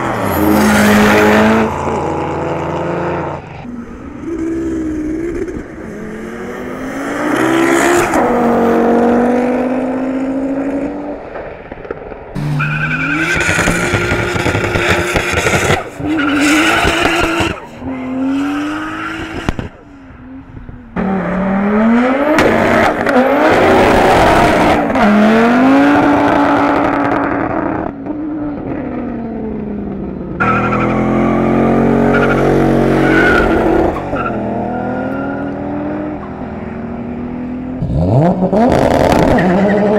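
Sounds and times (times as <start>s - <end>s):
race cars accelerating hard: 12.4s - 19.8s, 21.0s - 29.4s, 37.0s - 39.9s.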